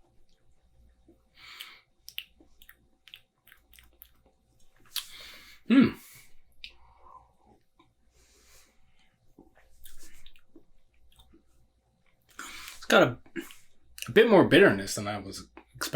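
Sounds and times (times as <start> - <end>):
lip smacks and mouth clicks: 0.2 - 5.3, 6.5 - 6.8, 9.0 - 14.1.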